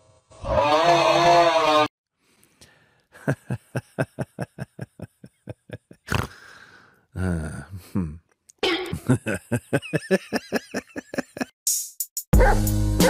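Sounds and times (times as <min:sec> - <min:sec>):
short low grunt: 0:06.1 - 0:06.6, 0:07.2 - 0:09.0.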